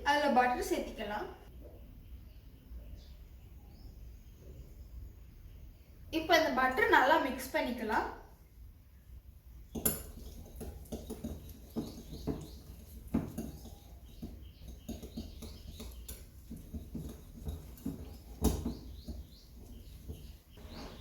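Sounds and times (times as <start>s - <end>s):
utensil scraping a mixing bowl: 9.7s - 21.0s.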